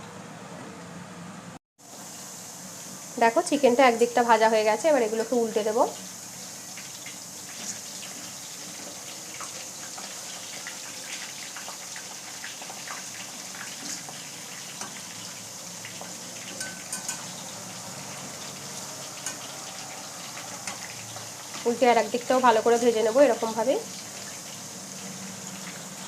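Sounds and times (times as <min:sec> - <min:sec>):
chicken deep-frying in oil: 0:01.8 - 0:26.0
oil crackling and popping: 0:06.5 - 0:21.8.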